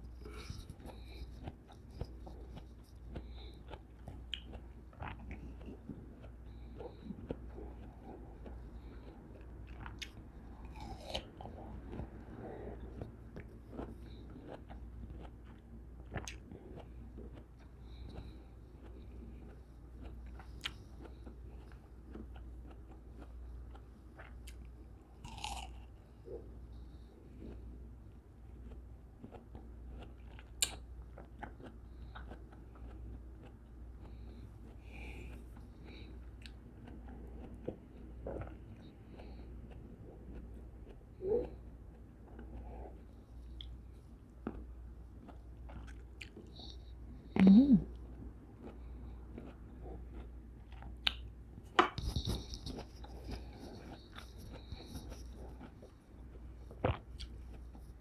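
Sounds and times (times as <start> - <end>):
wet chewing: 0.0 - 58.0
wet mouth clicks: 49.4 - 55.8.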